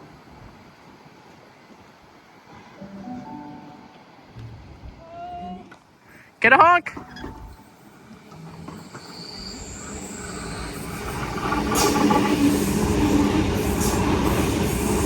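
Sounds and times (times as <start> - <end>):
electric train running through station: 0.0 - 5.0, 5.8 - 15.0
high whine from rails: 7.0 - 15.0.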